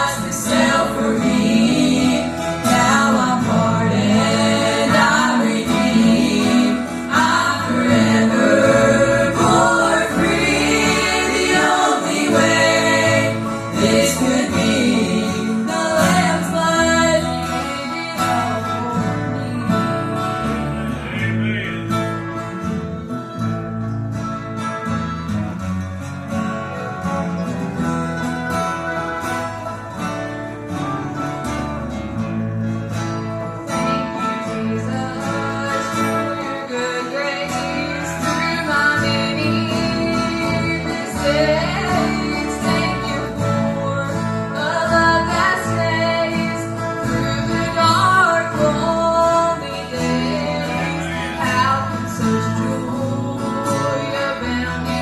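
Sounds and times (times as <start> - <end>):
group singing: 0.0 - 22.4, 34.2 - 55.0
acoustic guitar: 0.0 - 55.0.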